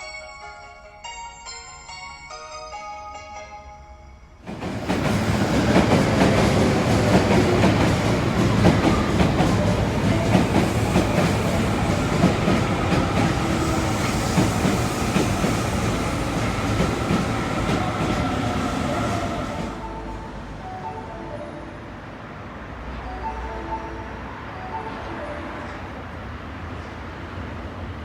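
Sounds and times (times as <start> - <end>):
train wheels clattering on rails: 4.4 - 20.1.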